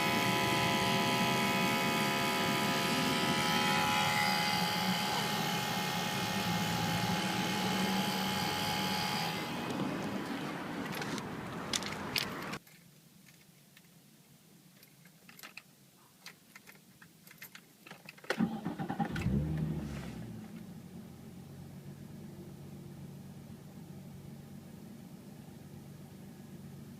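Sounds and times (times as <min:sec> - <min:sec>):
pump motor whirring: 0:00.0 - 0:09.8
keys jingling: 0:14.8 - 0:18.3
car engine cranking and starting: 0:17.5 - 0:26.9.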